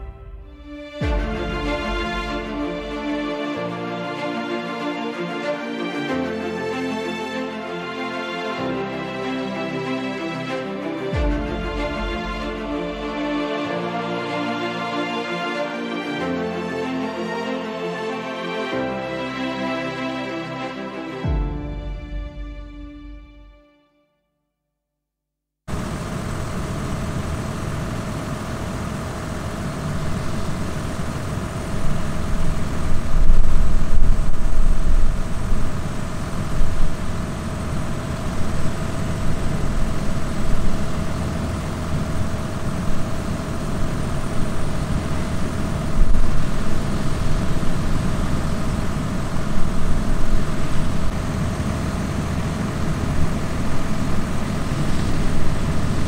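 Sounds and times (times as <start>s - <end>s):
farm machinery engine drone: 25.7s - 56.0s.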